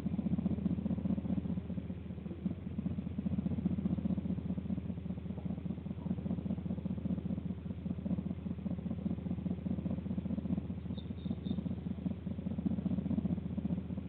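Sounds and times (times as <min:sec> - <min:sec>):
low mechanical rumble with flutter: 0:00.0 - 0:14.0
faint high chirps: 0:10.9 - 0:11.7.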